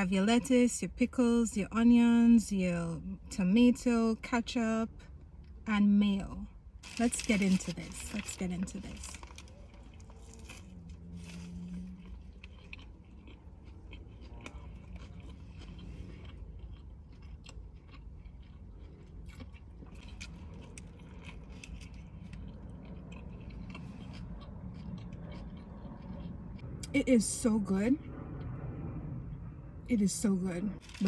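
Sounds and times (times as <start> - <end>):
steady low hum: 0.0 - 31.0
person chewing burger: 9.0 - 26.9.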